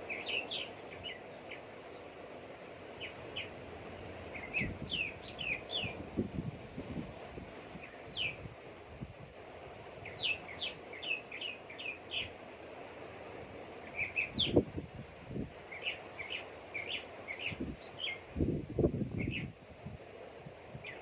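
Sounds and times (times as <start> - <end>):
small bird chirping: 0.0 - 1.7, 4.3 - 6.0, 10.0 - 12.3, 15.7 - 18.3
distant surf hiss: 0.0 - 21.0.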